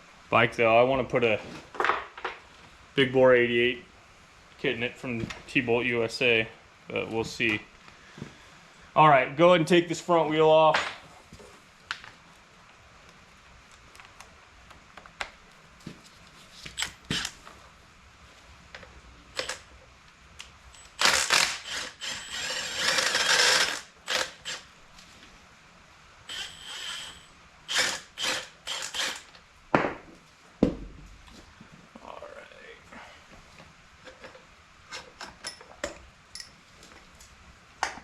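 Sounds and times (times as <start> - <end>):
metal tool clicks and knocks: 35.2 - 36.6.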